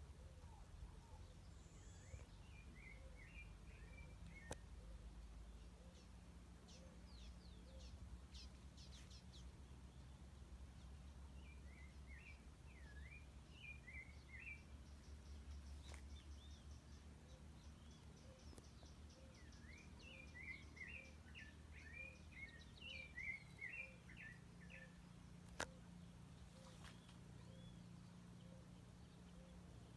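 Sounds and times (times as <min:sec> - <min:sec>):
low steady rumble: 0:00.0 - 0:29.9
birds warbling chirps: 0:10.8 - 0:29.9
sharp click: 0:25.4 - 0:25.8.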